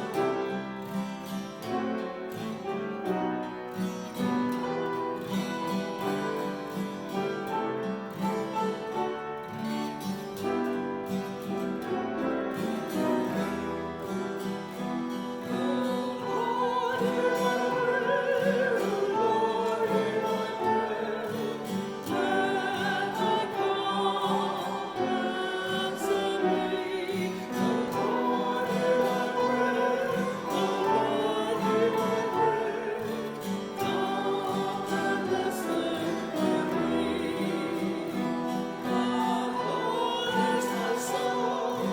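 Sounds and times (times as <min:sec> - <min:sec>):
instrumental accompaniment: 0:00.0 - 0:41.9
person singing with vibrato: 0:12.5 - 0:41.9.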